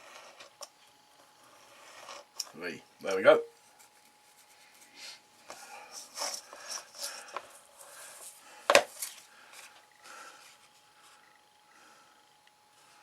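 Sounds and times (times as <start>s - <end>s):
card rustling: 3.8s - 9.8s.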